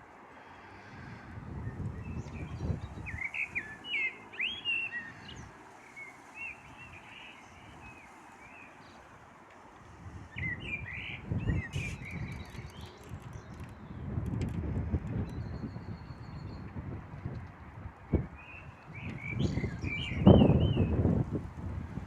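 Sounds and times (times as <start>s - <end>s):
blackbird singing: 1.7s - 8.9s, 10.3s - 14.0s, 18.4s - 21.0s.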